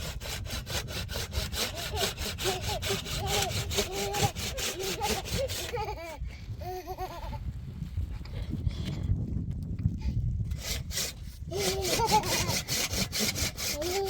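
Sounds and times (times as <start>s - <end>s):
hand saw cutting wood: 0.0s - 6.1s, 10.5s - 14.0s.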